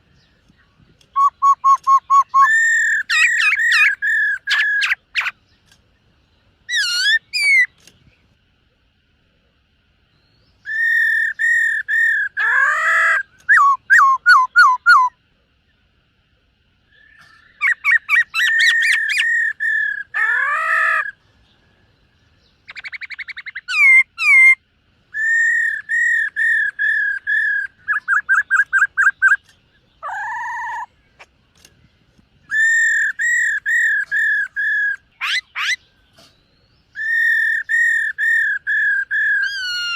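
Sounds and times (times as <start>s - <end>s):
laughingthrush whistled song: 1.1s - 5.3s, 10.6s - 15.2s, 22.7s - 30.9s, 32.5s - 36.3s, 36.9s - 39.9s.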